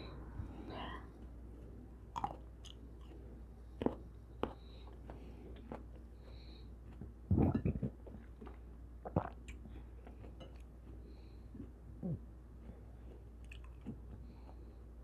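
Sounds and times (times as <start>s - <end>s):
person chewing fruit: 1.6s - 12.2s, 12.9s - 14.7s
soft mouth sounds: 11.6s - 12.3s.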